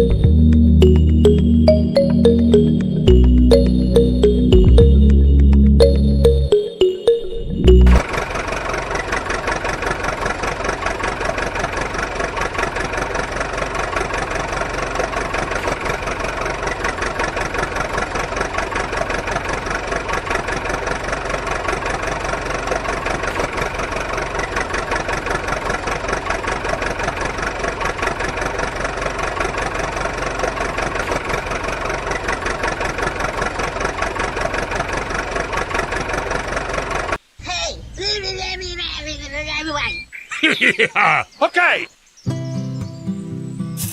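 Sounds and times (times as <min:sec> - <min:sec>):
small engine idling: 0:08.0 - 0:37.2.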